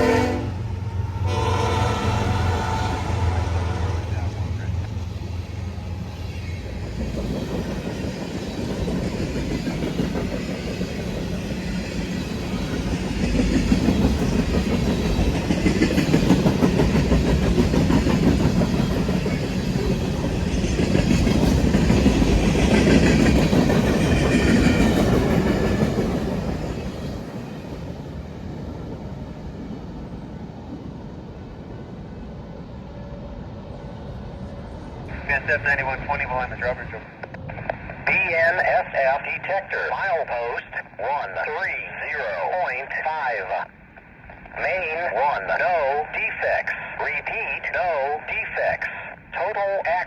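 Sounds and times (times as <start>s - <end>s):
train wheels rolling on rails: 1.9s - 31.9s.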